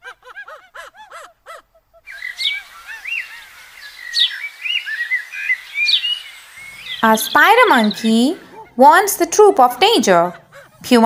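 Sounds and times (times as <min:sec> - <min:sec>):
steady hiss: 0:01.3 - 0:08.4
bird calls and chirps: 0:01.5 - 0:08.6.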